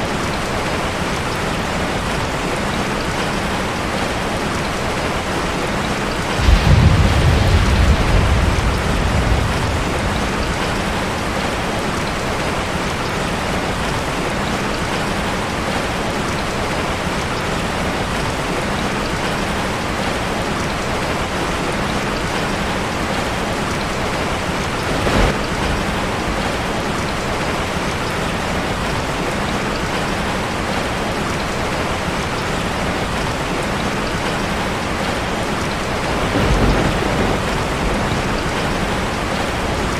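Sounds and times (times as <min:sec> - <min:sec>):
rain on a metal roof: 0:00.0 - 0:39.9
thunder rumbling: 0:06.2 - 0:13.9, 0:23.9 - 0:28.3, 0:34.8 - 0:39.9.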